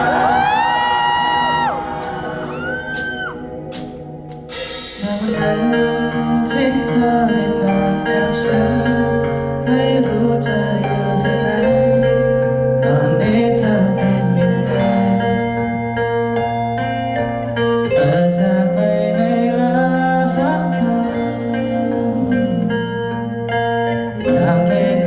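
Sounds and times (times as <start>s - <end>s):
band playing slow pop ballad: 0.0s - 25.0s
person singing: 5.0s - 16.2s, 17.8s - 25.0s.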